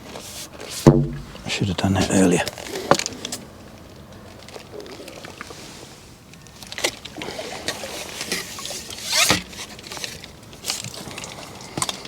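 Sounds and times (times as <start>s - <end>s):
fishing pole clicks and knocks: 0.9s - 1.5s.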